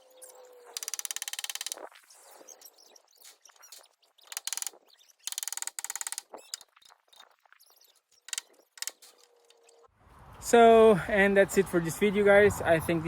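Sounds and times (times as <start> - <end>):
rapid mechanical clicking: 0.8 - 1.9, 4.3 - 6.7.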